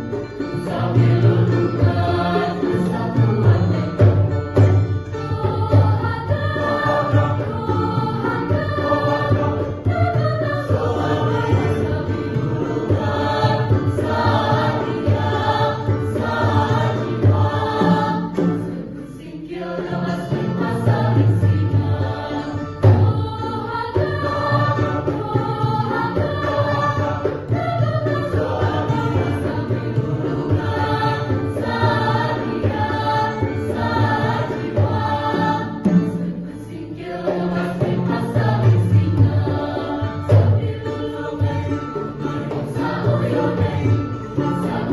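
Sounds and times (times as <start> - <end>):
mixed choir singing in parts: 0.0 - 44.9.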